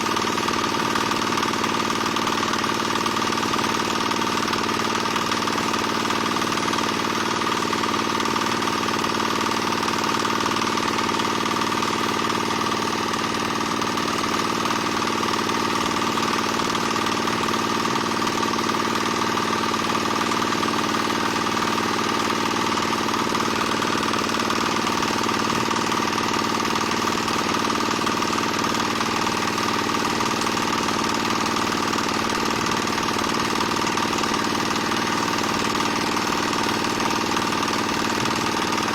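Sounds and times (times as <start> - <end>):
small diesel engine running: 0.0 - 38.9.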